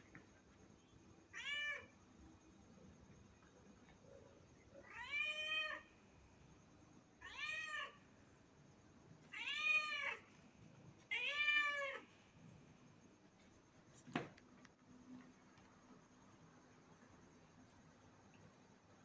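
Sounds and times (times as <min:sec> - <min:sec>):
cat meowing: 0:01.3 - 0:01.9, 0:07.2 - 0:08.0, 0:09.3 - 0:10.2, 0:11.1 - 0:12.0.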